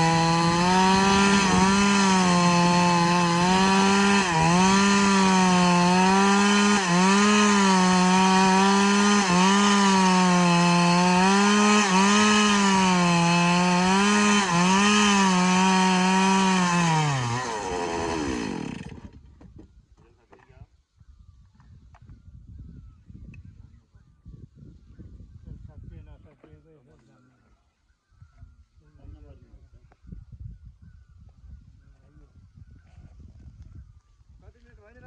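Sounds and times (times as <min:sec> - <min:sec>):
chainsaw cutting log: 0:00.0 - 0:19.3.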